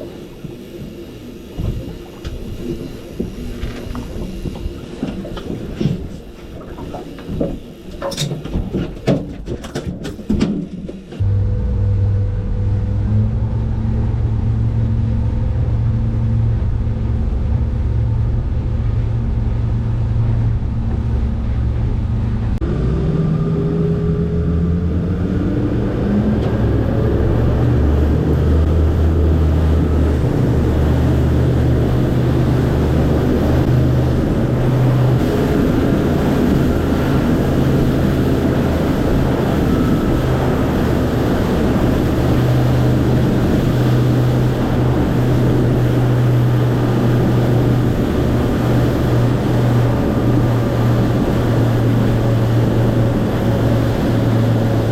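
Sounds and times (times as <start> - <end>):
motorboat engine: 0.0 - 54.9
wind: 0.0 - 54.9
water rushing: 22.7 - 54.9.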